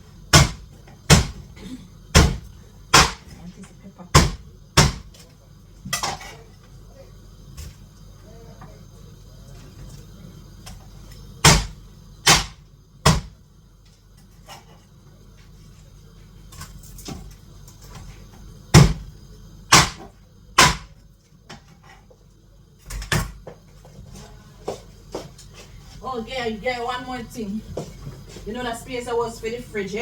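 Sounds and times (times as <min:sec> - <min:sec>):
knife chopping onto cutting board: 0:00.3 - 0:01.4, 0:02.2 - 0:03.3, 0:04.2 - 0:05.1, 0:12.3 - 0:13.3, 0:19.7 - 0:20.9.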